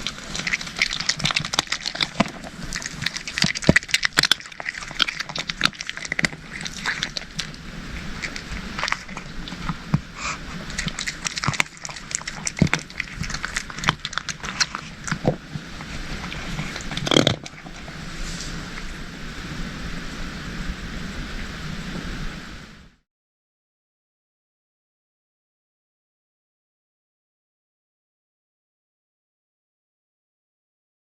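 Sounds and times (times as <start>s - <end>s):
cats crunching dry kibble: 0.0s - 19.1s
steady hiss: 0.0s - 23.0s.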